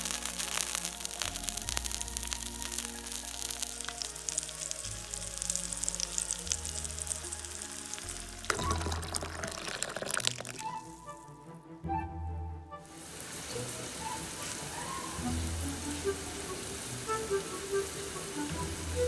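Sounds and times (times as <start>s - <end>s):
food sizzling in hot oil: 0.0s - 11.0s, 13.0s - 19.0s
background music: 0.0s - 19.0s
water bubbling in a pot: 0.1s - 10.9s.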